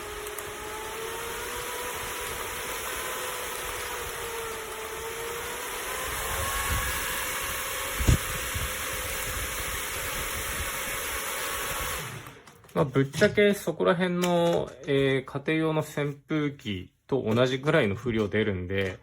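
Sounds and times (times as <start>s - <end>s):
fan rushing air: 0.0s - 12.4s
faint motor whine: 0.0s - 12.5s.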